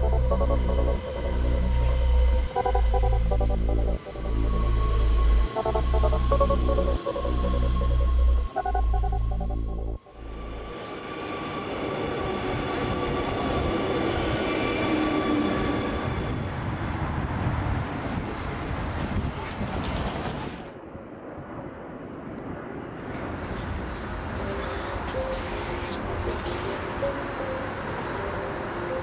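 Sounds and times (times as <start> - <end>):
train wheels rumbling on rails: 10.4 - 20.8, 23.0 - 29.0.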